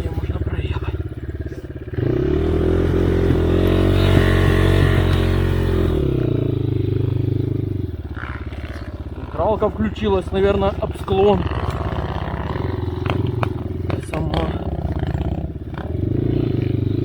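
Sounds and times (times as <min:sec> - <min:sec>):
dirt bike engine revving: 0:00.0 - 0:17.0
bike clatter: 0:08.0 - 0:15.9.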